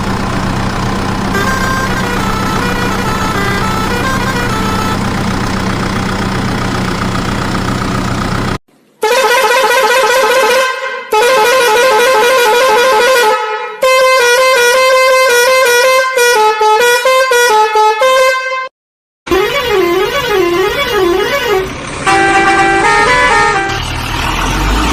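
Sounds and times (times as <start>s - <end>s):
vehicle engine running: 0.0s - 8.6s, 19.3s - 24.9s
musical vehicle horn: 1.3s - 5.1s, 9.0s - 18.7s, 19.3s - 24.0s.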